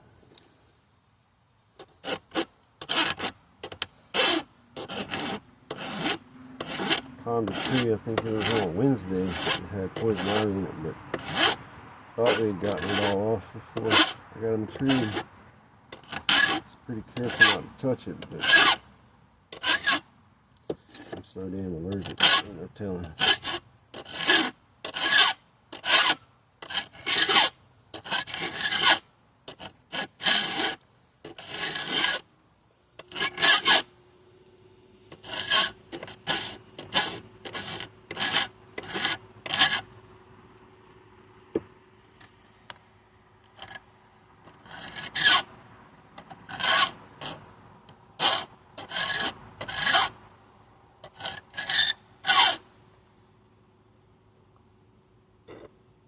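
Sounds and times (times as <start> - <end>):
file rasping on chain teeth: 1.8 - 11.6, 12.2 - 15.3, 16.0 - 18.8, 19.5 - 20.0, 21.9 - 32.2, 33.0 - 33.9, 35.1 - 39.9, 44.6 - 45.5, 46.2 - 47.5, 48.2 - 50.2, 51.0 - 52.6.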